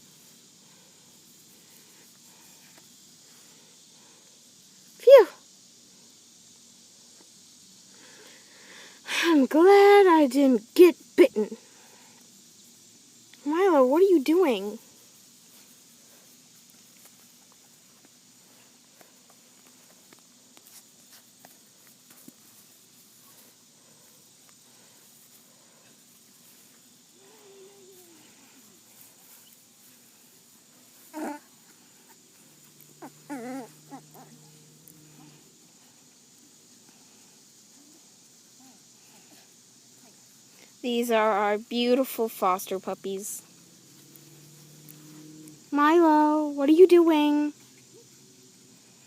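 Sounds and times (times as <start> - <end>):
steady low hiss: 0.0 - 49.0
puppy whimpering: 31.1 - 31.4, 33.0 - 34.4.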